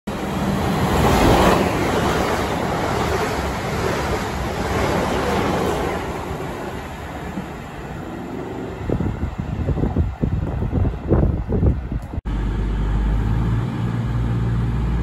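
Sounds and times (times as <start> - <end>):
train rushing past: 0.1 - 15.0
wind buffeting microphone: 0.6 - 12.2.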